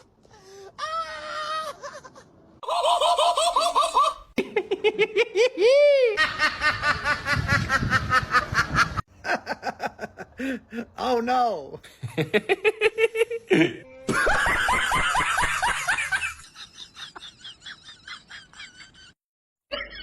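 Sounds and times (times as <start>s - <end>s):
laughter-like vocal bursts: 12.1s - 20.0s.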